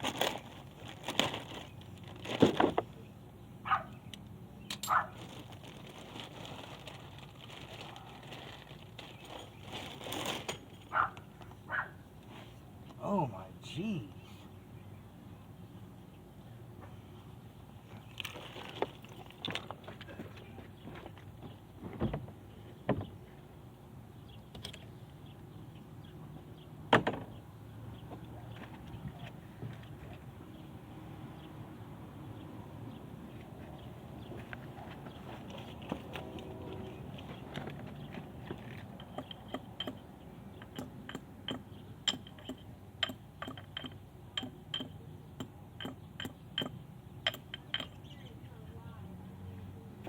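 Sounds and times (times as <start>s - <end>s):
faint steady background noise: 0.0s - 50.0s
tools and metal parts clanking: 4.7s - 5.0s, 7.5s - 11.0s, 17.9s - 20.4s, 34.9s - 48.0s
metallic clicks of hand tools: 40.6s - 48.0s.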